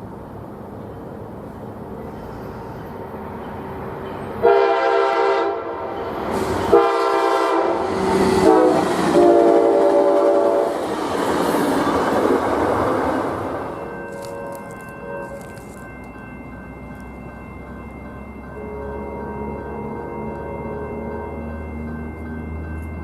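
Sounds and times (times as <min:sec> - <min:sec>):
train rumbling past: 0:00.0 - 0:23.0
locomotive air horn: 0:04.4 - 0:05.9, 0:06.7 - 0:10.8.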